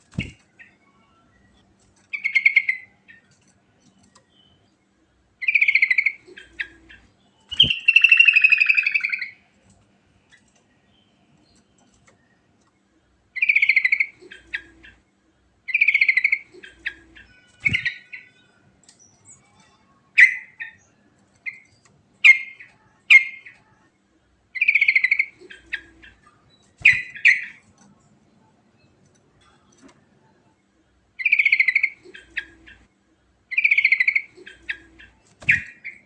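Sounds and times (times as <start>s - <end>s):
bird singing rolled phrases: 0.0s - 3.3s, 4.2s - 9.5s, 13.4s - 15.0s, 15.7s - 23.8s, 24.6s - 27.6s, 31.2s - 32.9s, 33.5s - 36.0s.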